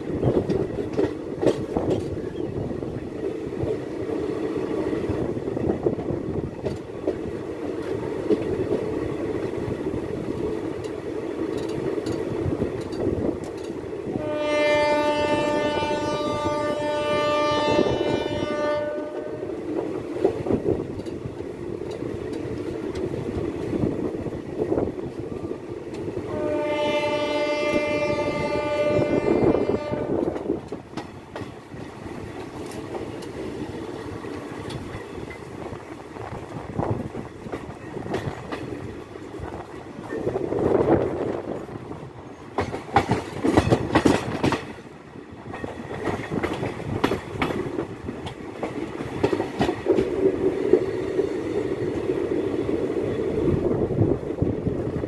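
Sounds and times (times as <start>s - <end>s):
train wheels rumbling on rail: 0.0s - 55.0s
locomotive horn blasts: 14.2s - 19.6s, 26.3s - 30.4s.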